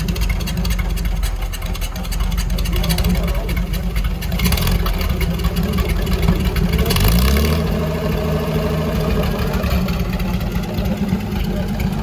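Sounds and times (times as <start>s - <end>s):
petrol engine revving: 0.0s - 12.0s.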